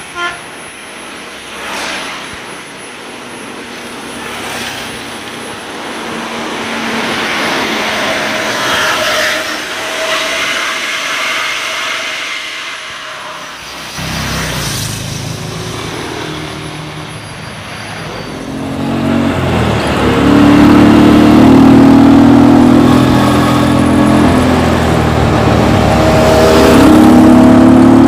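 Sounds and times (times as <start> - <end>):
bus exhaust whoosh passing: 0.0 - 28.0.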